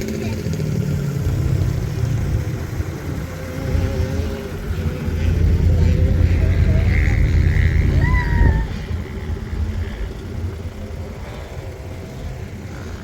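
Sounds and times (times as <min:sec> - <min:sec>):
off-road vehicle engine rumbling: 0:00.0 - 0:13.0.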